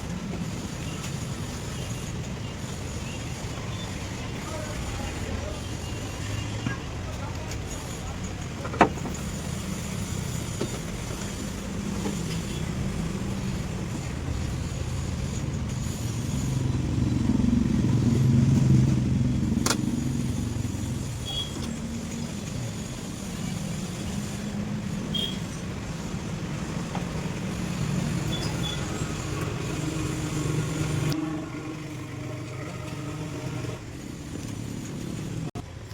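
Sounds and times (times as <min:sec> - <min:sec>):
car engine running: 0:08.1 - 0:35.6.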